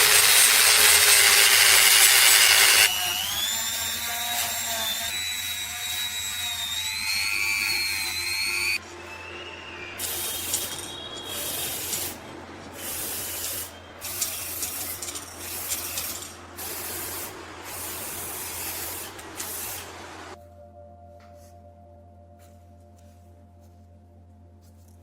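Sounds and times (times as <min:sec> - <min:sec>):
spray paint hissing: 0:10.0 - 0:20.4.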